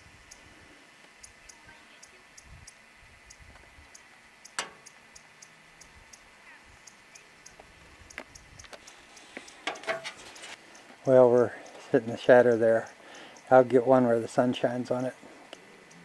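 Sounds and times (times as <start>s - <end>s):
faint high-pitched ticking: 0.0s - 16.0s
sharp click: 4.5s - 5.0s.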